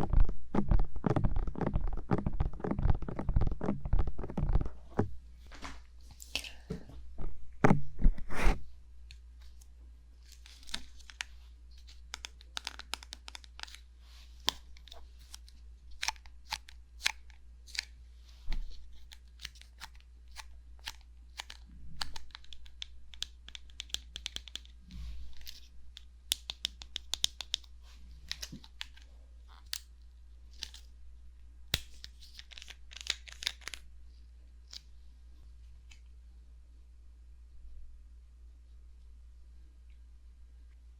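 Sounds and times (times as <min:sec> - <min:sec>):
fingertips tapping on microphone: 0:00.0 - 0:05.1.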